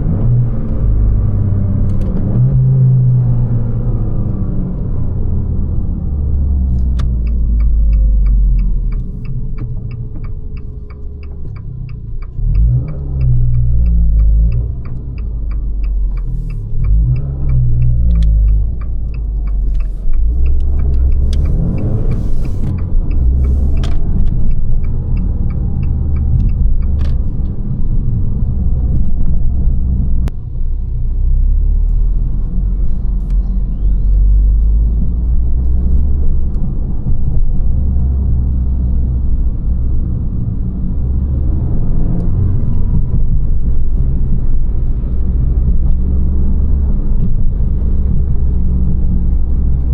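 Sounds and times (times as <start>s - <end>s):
car engine revving while driving: 0.0s - 49.9s
light regular ticking: 6.8s - 28.0s.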